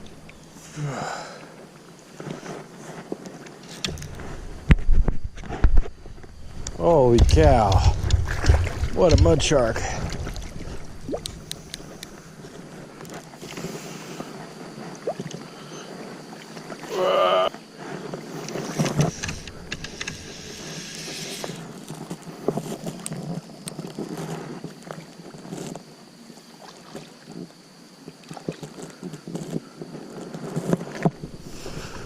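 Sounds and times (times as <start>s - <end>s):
wind on microphone: 3.9s - 13.0s
sharp clicks: 18.4s - 21.2s.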